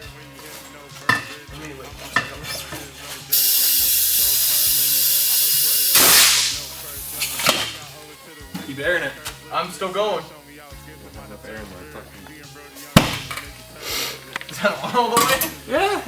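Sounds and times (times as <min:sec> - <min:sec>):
compressed air hissing into tire: 0:02.1 - 0:08.2, 0:12.2 - 0:14.4.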